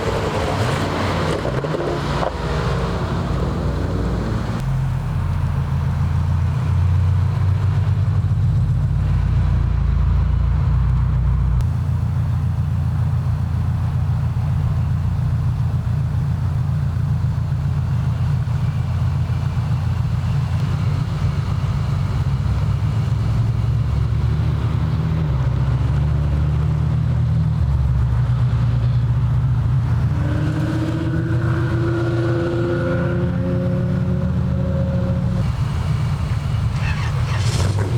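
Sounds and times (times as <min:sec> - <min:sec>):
car engine idling: 0:02.5 - 0:24.1, 0:34.1 - 0:37.9.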